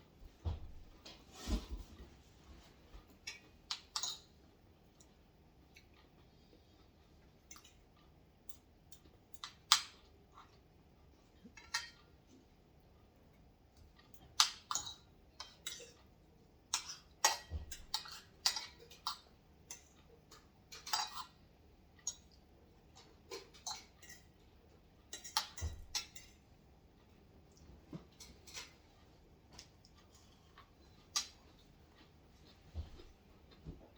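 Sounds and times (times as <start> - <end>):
cutlery clinking on dishes: 16.7 - 21.4, 25.1 - 26.4, 28.1 - 28.8.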